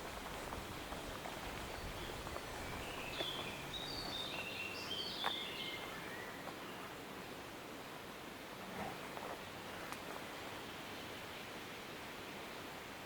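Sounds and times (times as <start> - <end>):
forest rustling: 0.0 - 13.0
songbird whistling: 2.0 - 6.4.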